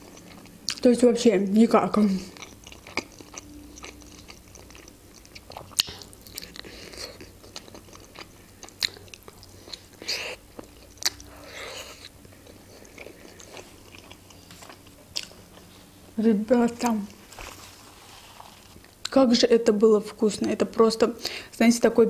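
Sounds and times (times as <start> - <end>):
person chewing: 0.0 - 0.9, 2.2 - 15.9
lip smacks and mouth clicks: 4.6 - 7.3.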